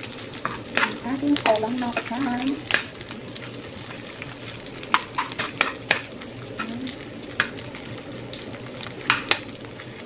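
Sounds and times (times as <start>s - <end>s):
food sizzling in hot oil: 0.0s - 10.0s
metal spatula knocking a pan: 4.9s - 6.1s, 9.1s - 9.5s.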